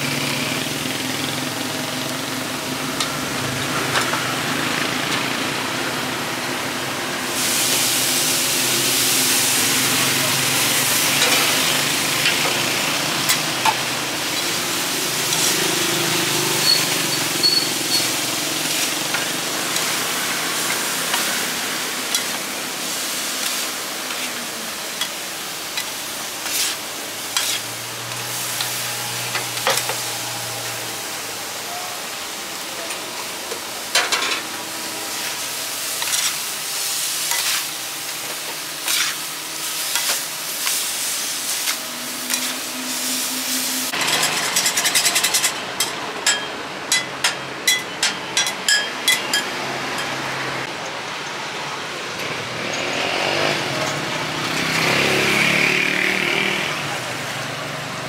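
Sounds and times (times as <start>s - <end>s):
food sizzling in a pan: 6.6s - 44.4s.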